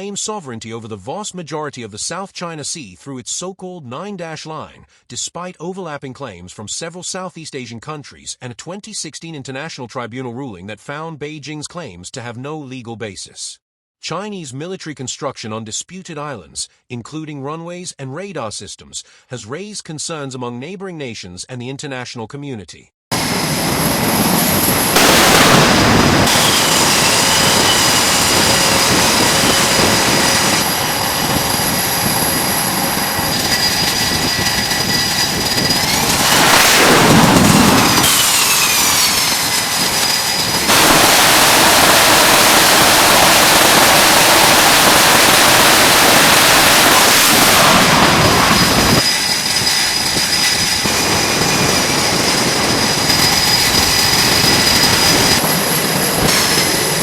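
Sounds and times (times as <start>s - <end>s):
jet engine rush and whine: 23.1s - 57.0s
jet passing by: 23.1s - 57.0s.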